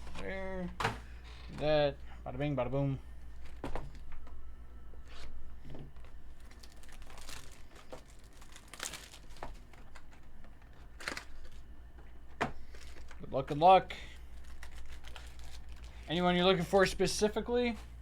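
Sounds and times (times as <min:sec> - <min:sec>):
low hum: 0:00.0 - 0:16.1
wrappers crinkling: 0:05.9 - 0:11.8, 0:12.6 - 0:17.3.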